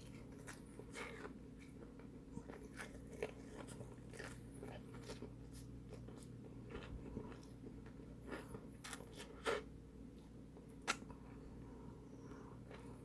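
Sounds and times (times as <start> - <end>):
mouth chewing food: 0.0 - 9.7
faint steady hum: 0.0 - 13.0.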